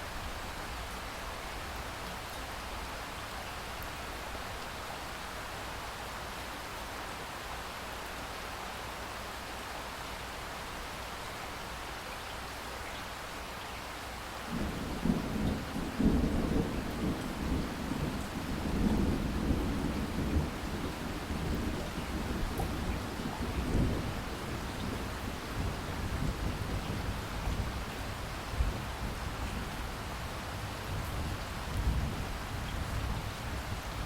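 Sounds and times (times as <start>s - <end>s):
heavy rain falling: 0.0s - 34.0s
thunder rumbling: 14.5s - 29.9s.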